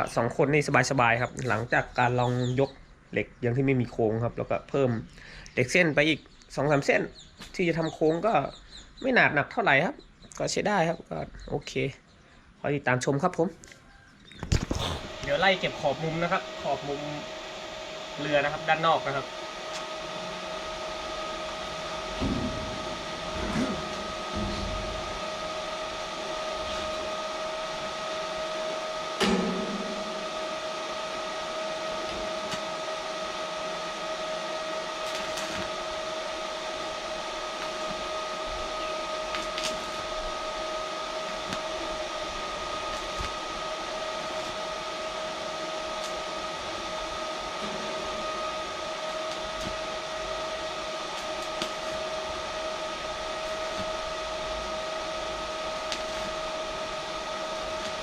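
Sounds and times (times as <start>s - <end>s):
electric arc welding hiss: 14.5s - 58.0s
two-note hum: 18.0s - 58.0s.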